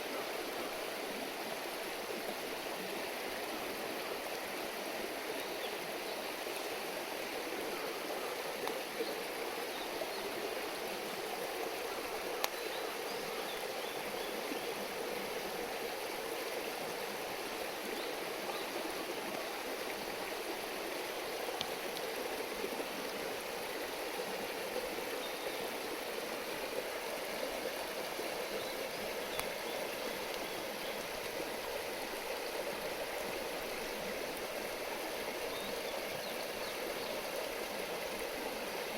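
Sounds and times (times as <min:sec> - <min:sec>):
river water babbling: 0:00.0 - 0:38.9.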